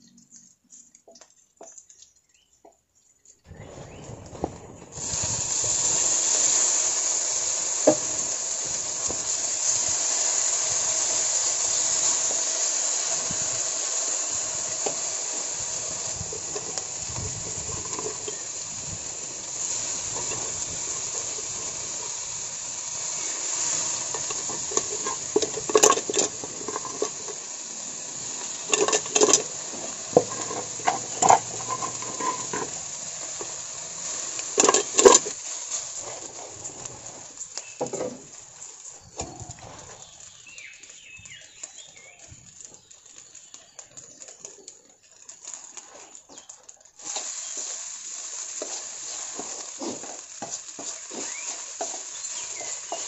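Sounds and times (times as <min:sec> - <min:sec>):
food sizzling in oil: 0:03.5 - 0:53.0
utensil scraping a pan: 0:16.3 - 0:37.0.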